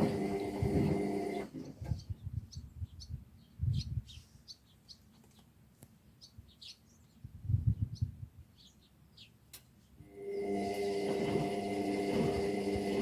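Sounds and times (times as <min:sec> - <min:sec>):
small birds chirping: 0:01.3 - 0:10.0.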